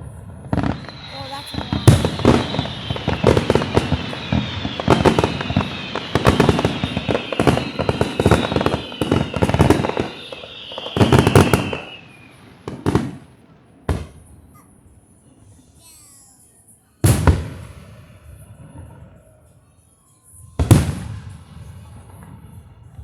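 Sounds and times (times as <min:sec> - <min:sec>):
fireworks bangs and crackle: 0:00.0 - 0:15.7, 0:17.0 - 0:19.4, 0:20.4 - 0:23.0
fireworks whistles falling: 0:00.4 - 0:14.4.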